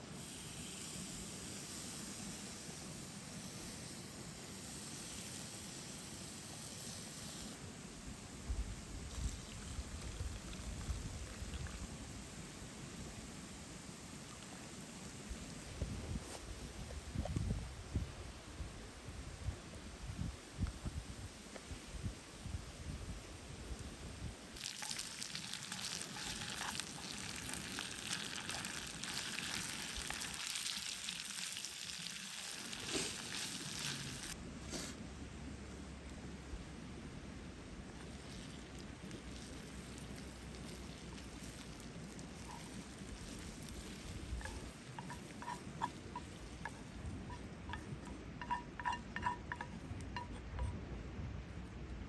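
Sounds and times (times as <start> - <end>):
food sizzling in a pan: 24.6 - 34.4, 39.4 - 47.8, 48.4 - 49.7.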